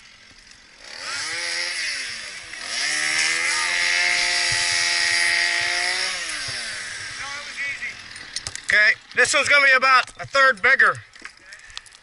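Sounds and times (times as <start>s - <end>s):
chainsaw revving: 0.6s - 9.6s.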